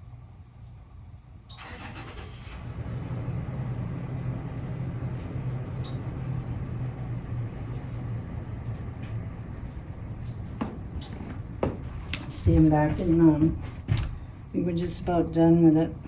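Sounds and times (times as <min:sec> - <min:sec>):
vehicle engine rumbling: 0:02.6 - 0:16.0.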